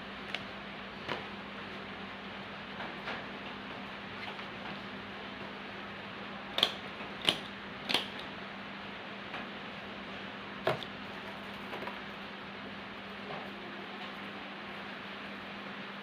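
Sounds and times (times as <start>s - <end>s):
steady low hum: 0.0s - 16.0s
small sharp clicks and taps: 6.6s - 8.3s.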